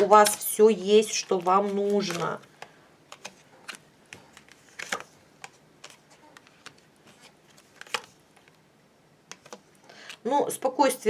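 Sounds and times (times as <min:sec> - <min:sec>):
cards clicking and tapping: 0:01.1 - 0:08.6, 0:09.3 - 0:10.2.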